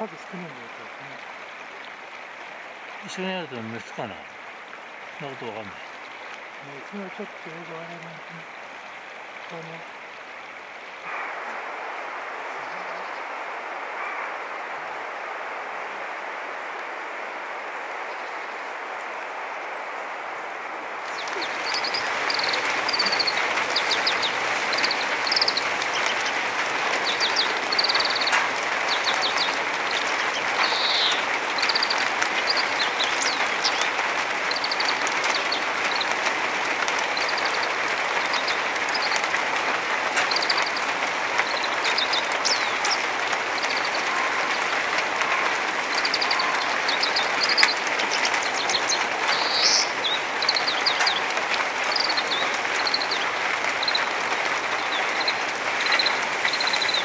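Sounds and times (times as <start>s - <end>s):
steady rushing noise: 11.0s - 57.0s
small birds chirping: 16.7s - 57.0s.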